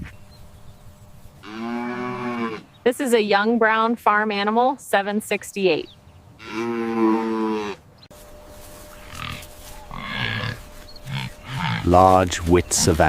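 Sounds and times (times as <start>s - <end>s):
farm animal calling: 1.4s - 7.9s, 8.7s - 13.0s.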